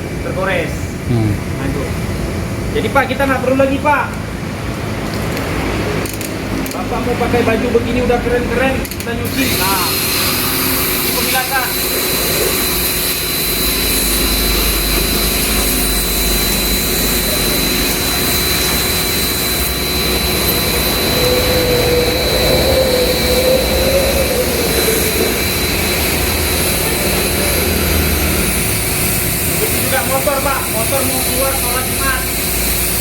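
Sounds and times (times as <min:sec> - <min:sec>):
pressure washer spraying: 0:09.3 - 0:20.0, 0:24.6 - 0:33.0.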